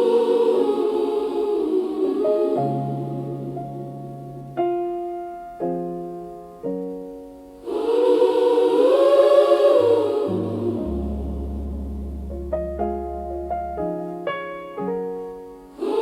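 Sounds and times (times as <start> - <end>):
gospel choir singing: 0.0 - 4.7, 7.6 - 12.4, 15.7 - 16.0
piano chords: 0.0 - 16.0.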